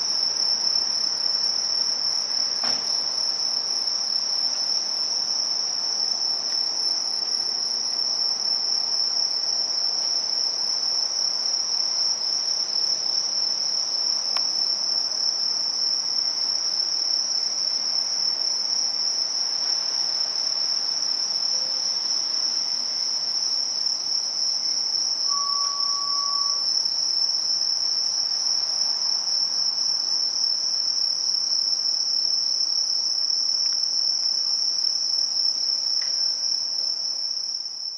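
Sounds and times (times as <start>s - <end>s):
crickets chorus: 0.0s - 37.9s
short faint lower tone: 25.3s - 26.7s.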